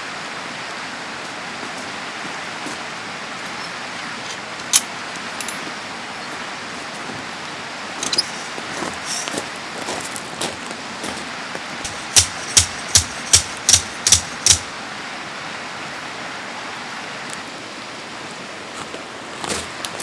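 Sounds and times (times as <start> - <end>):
mountain stream rushing: 0.0 - 20.0
sharp knocks: 11.8 - 14.7.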